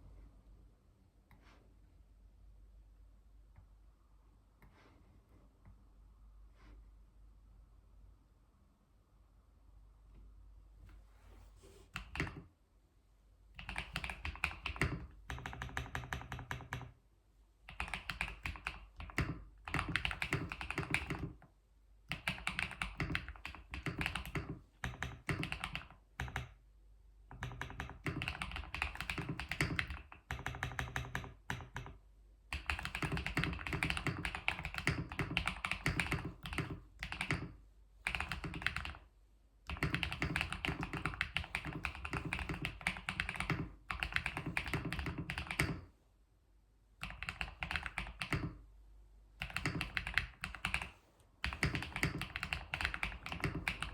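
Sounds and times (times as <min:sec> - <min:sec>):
computer keyboard typing: 0:12.0 - 0:12.5, 0:13.6 - 0:17.0, 0:17.7 - 0:21.4, 0:22.1 - 0:26.6, 0:27.3 - 0:39.0, 0:39.7 - 0:45.9, 0:47.0 - 0:48.6, 0:49.4 - 0:53.9.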